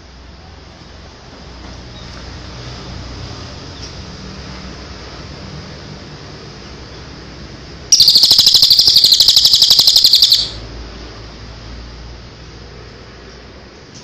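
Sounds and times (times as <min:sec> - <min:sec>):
songbird fast trill: 0:07.9 - 0:10.6.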